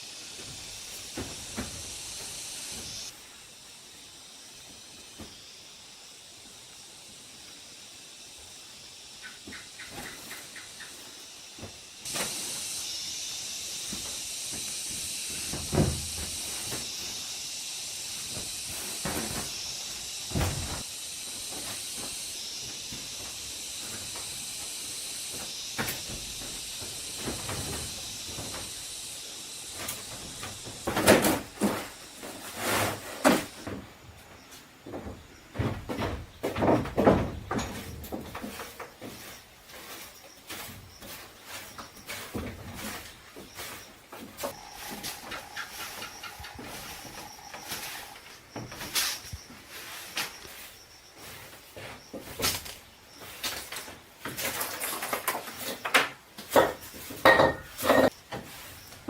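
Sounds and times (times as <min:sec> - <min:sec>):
steady hiss: 0:00.0 - 0:59.0
loud thump: 0:20.3 - 0:20.8
objects knocking and scraping: 0:53.5 - 0:58.6.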